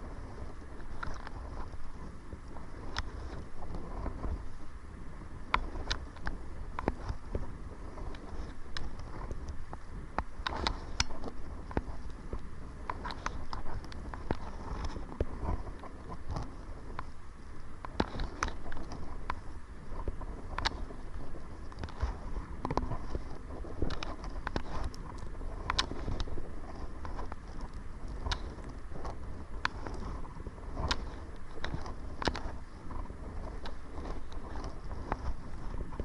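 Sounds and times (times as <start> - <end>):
wind rumbling on microphone: 0.0 - 36.0.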